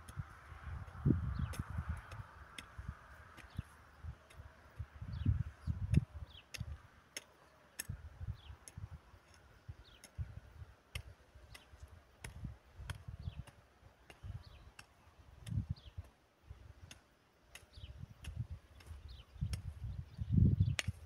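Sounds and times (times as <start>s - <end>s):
bird chirping: 3.3s - 10.3s, 13.1s - 14.9s, 15.5s - 16.1s, 16.8s - 21.0s.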